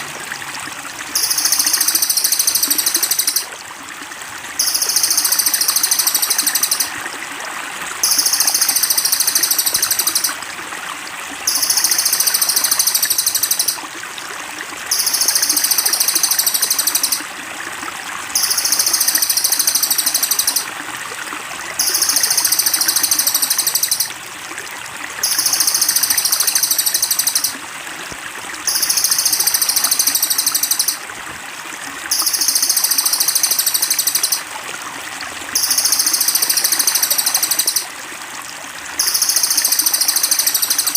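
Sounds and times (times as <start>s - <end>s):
trickle of running water: 0.0s - 40.9s
songbird high rapid trill: 1.2s - 3.5s, 4.6s - 7.0s, 8.0s - 10.4s, 11.5s - 13.8s, 14.9s - 17.2s, 18.4s - 20.7s, 21.8s - 24.2s, 25.2s - 27.6s, 28.7s - 31.0s, 32.1s - 34.4s, 35.6s - 37.9s, 39.0s - 40.9s.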